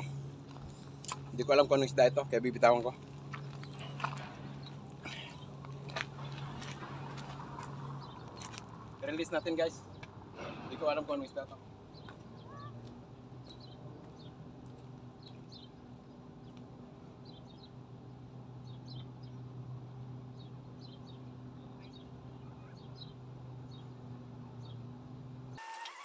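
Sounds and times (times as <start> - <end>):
small birds chirping: 2.6 - 7.2, 8.0 - 10.1, 11.9 - 14.4, 15.1 - 16.6, 17.2 - 24.0.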